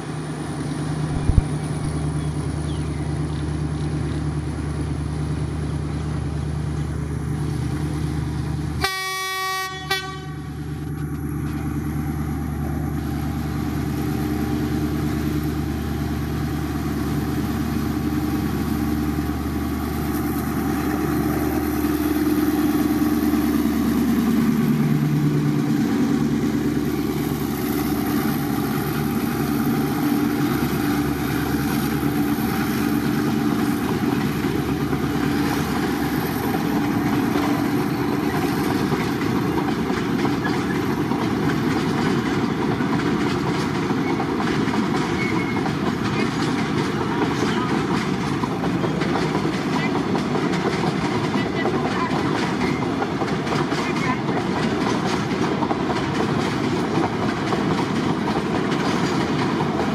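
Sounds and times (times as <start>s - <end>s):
diesel locomotive engine: 0.0s - 59.9s
train wheels clattering over rails: 12.4s - 59.9s.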